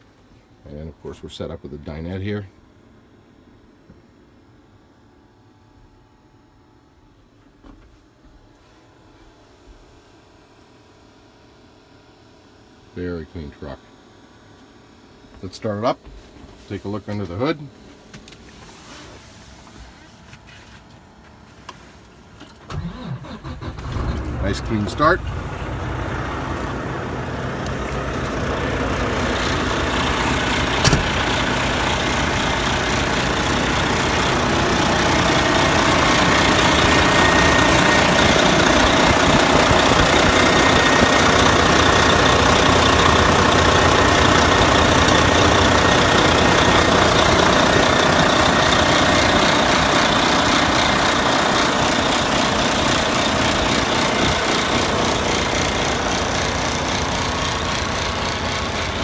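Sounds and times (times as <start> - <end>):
diesel truck engine idling: 23.0 - 59.0.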